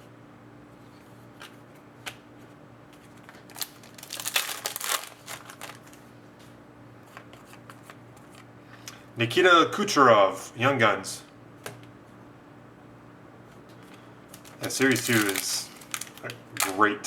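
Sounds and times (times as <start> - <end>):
foil pack tearing: 3.4 - 6.0, 14.3 - 16.8.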